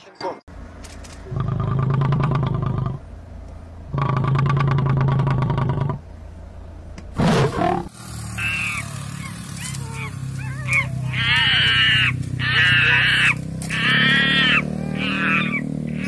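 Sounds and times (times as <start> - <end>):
lion roaring: 1.3 - 3.0, 3.9 - 6.0, 7.2 - 7.9.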